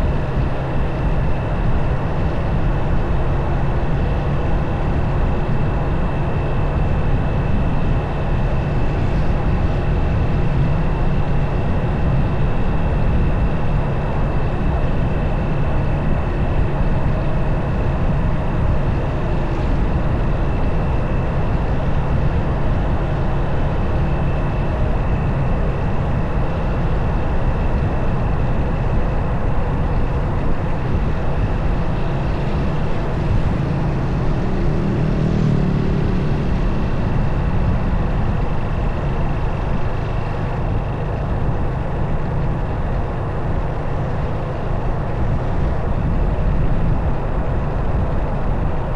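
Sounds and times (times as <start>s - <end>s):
wind rush on microphone: 0.0s - 48.9s
motorcycle engine running: 13.0s - 48.5s.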